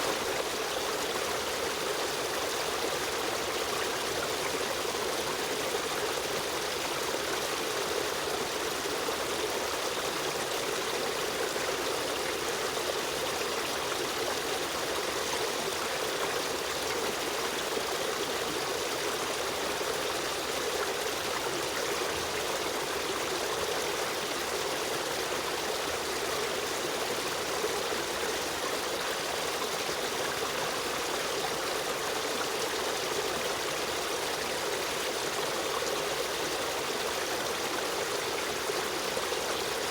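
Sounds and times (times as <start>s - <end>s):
stream water running over rocks: 0.0s - 39.9s.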